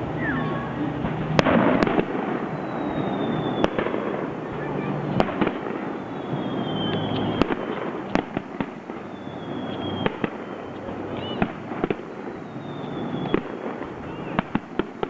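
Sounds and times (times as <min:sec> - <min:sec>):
firework whistles: 0:00.0 - 0:15.0
fireworks crackling: 0:00.0 - 0:15.0
firework shells bursting: 0:00.9 - 0:15.0.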